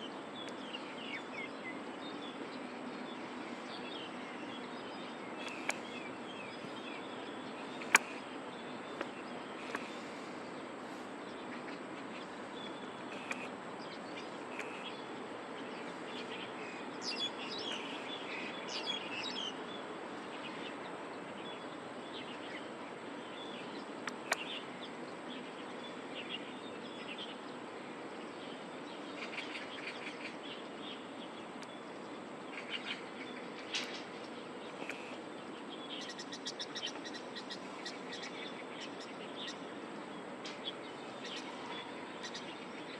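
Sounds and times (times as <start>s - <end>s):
distant city hum: 0.0s - 42.9s
small birds chirping: 0.0s - 42.9s.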